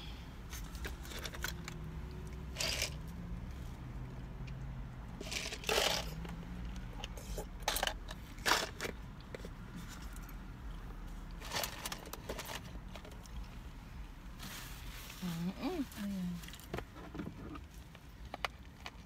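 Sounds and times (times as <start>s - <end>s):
paper cup crunching and crackling: 2.4s - 3.0s.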